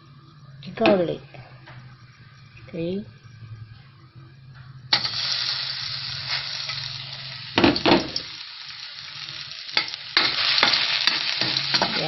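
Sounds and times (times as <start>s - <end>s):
garlic sizzling in oil: 4.9s - 12.0s.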